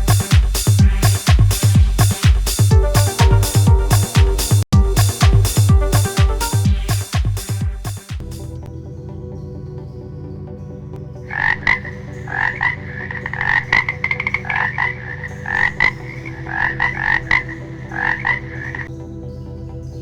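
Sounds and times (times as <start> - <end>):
frog croaking: 11.3 - 18.9.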